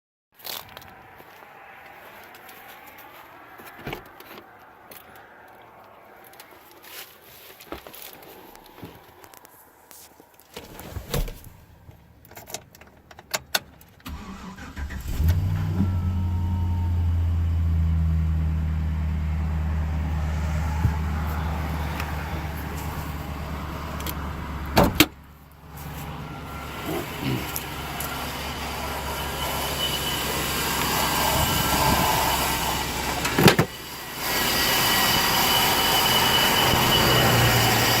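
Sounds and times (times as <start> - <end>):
pickup truck engine running: 14.2 - 38.0.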